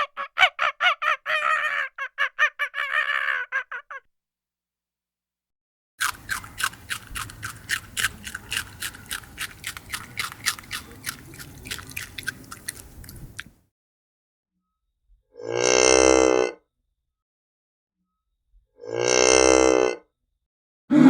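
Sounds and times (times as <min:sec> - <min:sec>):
animal chewing crunchily: 0:06.0 - 0:13.6.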